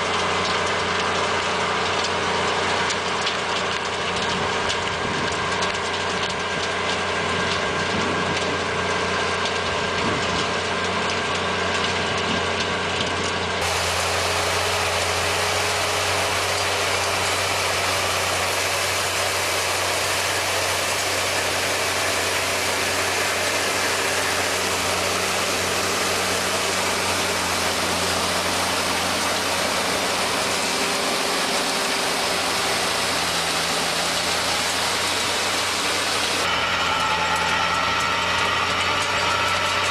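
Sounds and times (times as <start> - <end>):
farm machinery engine running: 0.0 - 39.9
hissing machine noise: 13.6 - 39.9.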